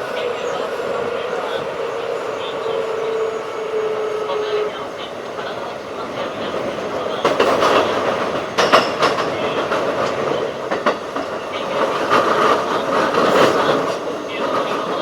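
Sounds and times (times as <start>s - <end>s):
train wheel and rail rumble: 0.0s - 15.0s
clacks over rail joints: 4.4s - 15.0s.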